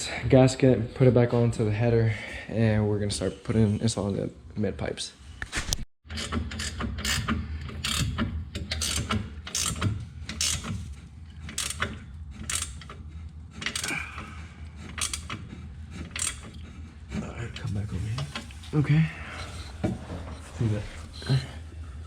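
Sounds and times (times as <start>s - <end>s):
socket ratchet clicking: 6.2s - 10.7s, 11.5s - 13.0s, 13.6s - 14.0s, 14.9s - 15.4s, 16.1s - 16.6s
steady low hum: 7.2s - 22.0s.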